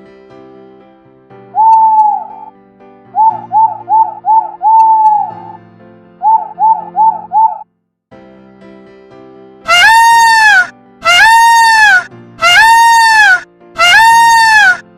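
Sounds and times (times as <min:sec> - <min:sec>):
background music: 0:00.0 - 0:07.6, 0:08.2 - 0:14.9
bird call: 0:01.6 - 0:02.5, 0:03.2 - 0:05.6, 0:06.2 - 0:07.6, 0:09.7 - 0:14.8.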